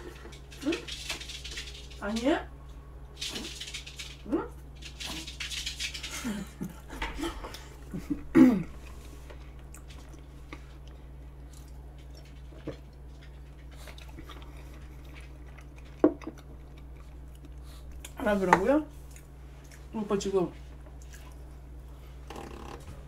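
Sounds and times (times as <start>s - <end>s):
chewing cake: 8.7s - 18.2s, 20.8s - 21.7s.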